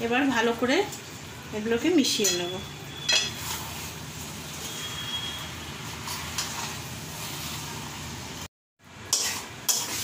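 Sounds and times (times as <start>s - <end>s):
food frying in a pot: 0.0s - 10.0s
spatula scraping a pot: 9.1s - 10.0s.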